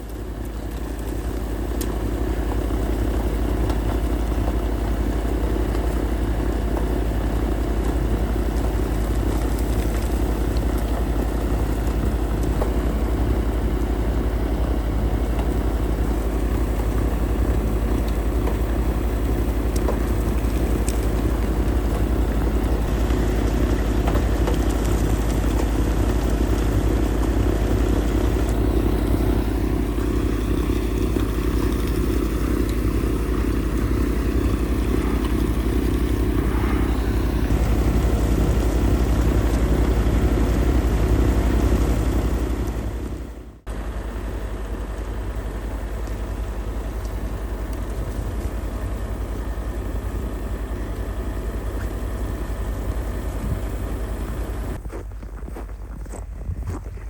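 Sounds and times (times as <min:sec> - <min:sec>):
snowblower engine running: 0:00.0 - 0:56.8.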